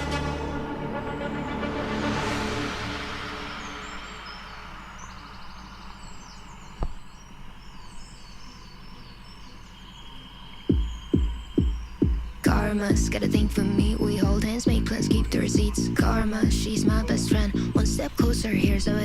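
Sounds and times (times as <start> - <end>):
music: 0.0 - 4.7, 10.7 - 19.0
birds chirping: 0.0 - 19.0
faint insect drone: 2.3 - 19.0.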